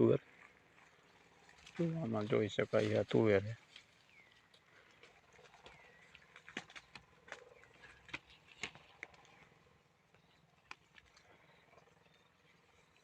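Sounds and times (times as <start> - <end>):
dry plants snapping and crackling: 4.5 - 9.6, 10.2 - 11.4.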